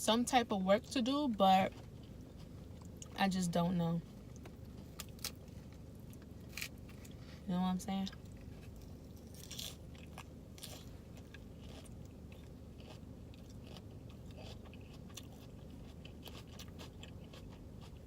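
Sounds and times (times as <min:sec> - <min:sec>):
steady low hum: 0:00.0 - 0:18.0
person chewing crunchy food: 0:04.3 - 0:07.2, 0:08.1 - 0:18.0.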